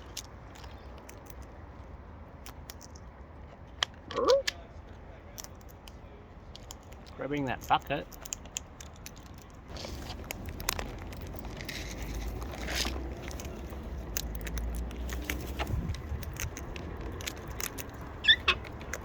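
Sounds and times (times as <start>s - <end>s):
birdseed and bucket clicking: 2.4s - 3.1s, 6.6s - 19.0s
steady low rumble: 9.5s - 19.0s.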